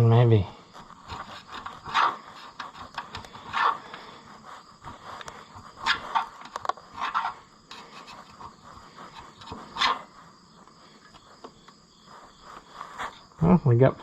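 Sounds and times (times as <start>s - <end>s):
tool scraping gasket material: 0.7s - 10.3s.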